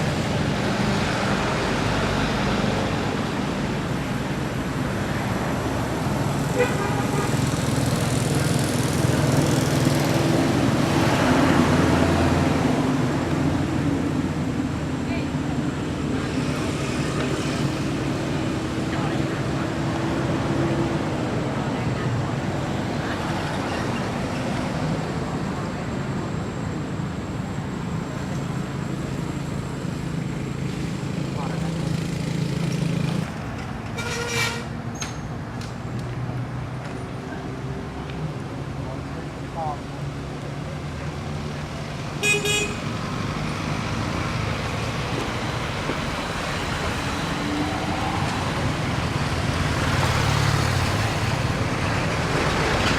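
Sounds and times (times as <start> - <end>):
horn toot: 34.0 - 34.7, 42.2 - 42.8.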